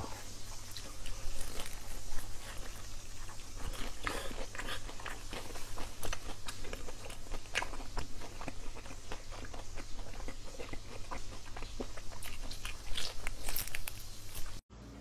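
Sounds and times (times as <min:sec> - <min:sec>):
person chewing with sharp clicks: 0:03.6 - 0:14.6.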